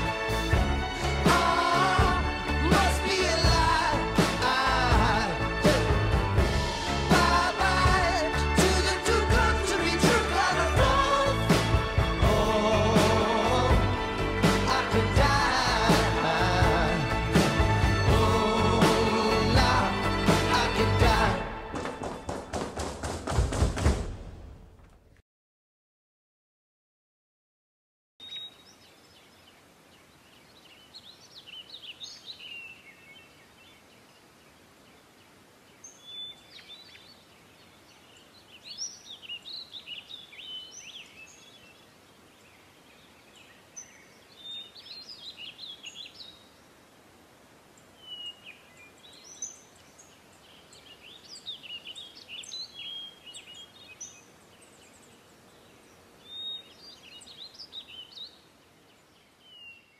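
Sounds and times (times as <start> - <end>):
birds chirping: 0.0 - 23.0, 28.2 - 46.8, 47.7 - 59.9
faint steady hiss: 28.2 - 59.9.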